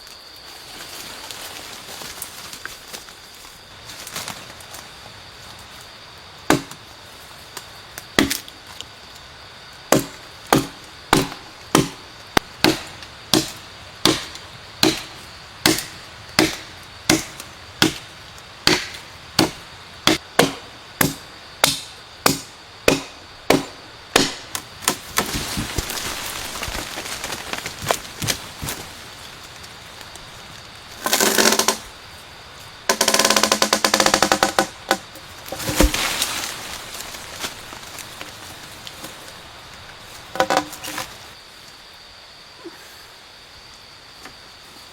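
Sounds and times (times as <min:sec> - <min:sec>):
wood chopping with a blade: 0:06.5 - 0:06.8, 0:08.2 - 0:08.6, 0:09.9 - 0:29.0, 0:31.0 - 0:31.8, 0:32.9 - 0:38.3, 0:40.3 - 0:41.2
rustling and crackling: 0:25.0 - 0:31.8, 0:35.2 - 0:41.4.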